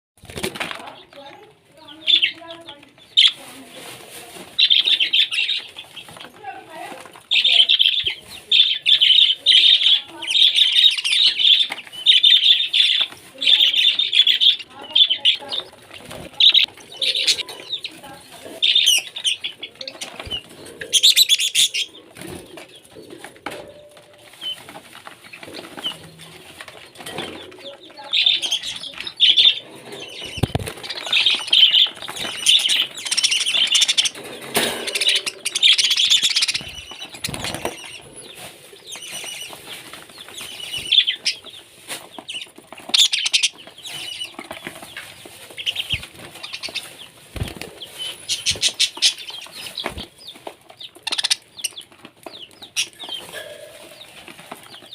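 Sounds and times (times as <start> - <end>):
parrot flapping wings: 0.2 - 0.9, 30.0 - 38.0, 45.5 - 50.1.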